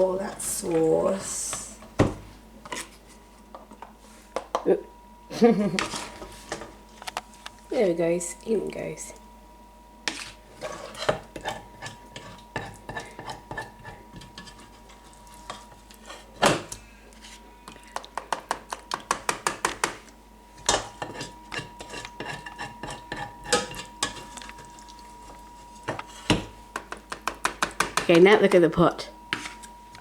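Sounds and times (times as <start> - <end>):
utensils clinking against pot: 20.7 - 24.7.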